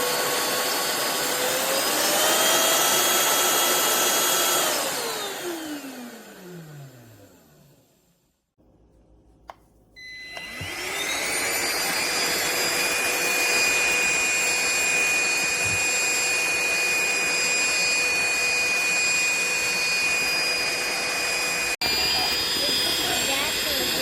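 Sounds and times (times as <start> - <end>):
handheld vacuum cleaner whining: 0.0 - 7.7, 10.0 - 24.0
vacuum cleaner switch click: 10.3 - 10.8.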